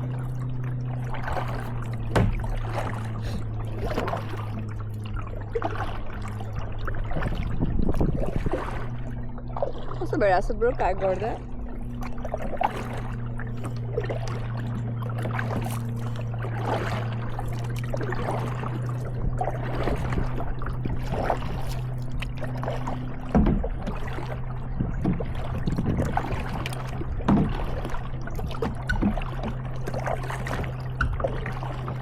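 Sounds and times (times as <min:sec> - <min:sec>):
paddle strokes splashing: 0:00.0 - 0:32.0
steady low hum: 0:00.0 - 0:32.0
sharp knocks: 0:02.1 - 0:02.5.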